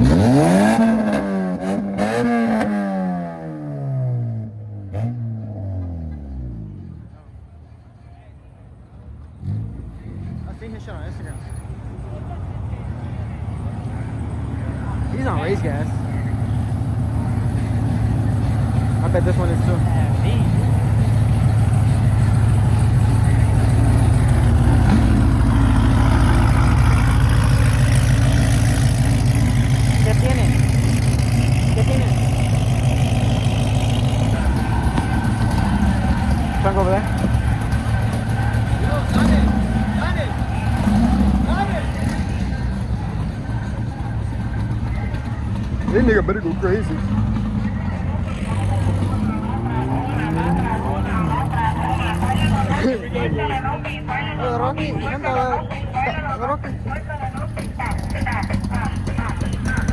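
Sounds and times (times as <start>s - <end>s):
car engine revving: 0.0s - 7.2s, 9.2s - 59.9s.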